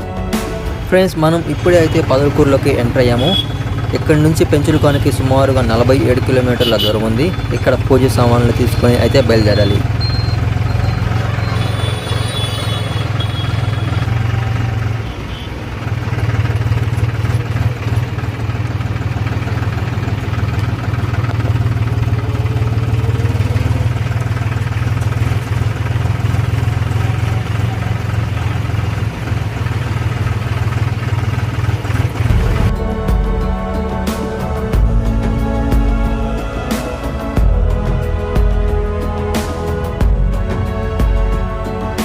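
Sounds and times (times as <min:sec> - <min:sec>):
tractor diesel engine droning: 0:00.0 - 0:42.0.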